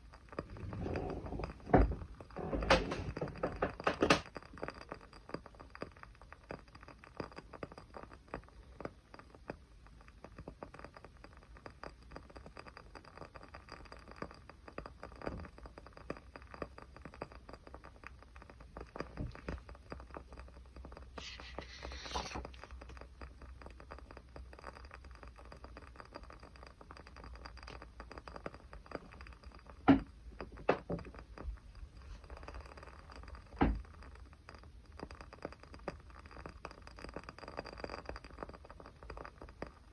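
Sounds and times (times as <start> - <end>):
small campfire crackling: 4.2 - 39.9
fire hiss: 21.1 - 22.9.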